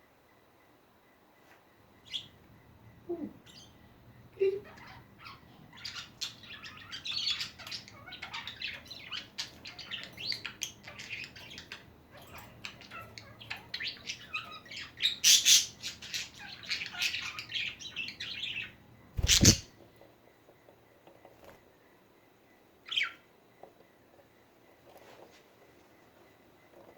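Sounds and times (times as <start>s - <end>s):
budgerigar chattering: 19.2s - 19.6s.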